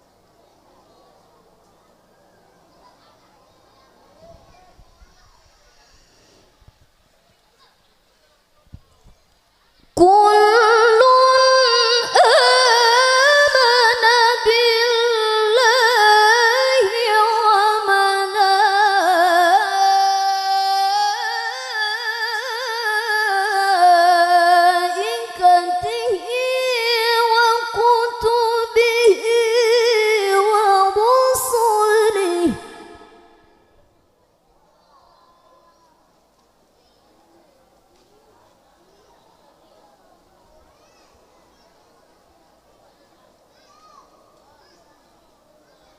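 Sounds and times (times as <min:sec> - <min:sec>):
woman chanting melodically: 0:10.0 - 0:33.7.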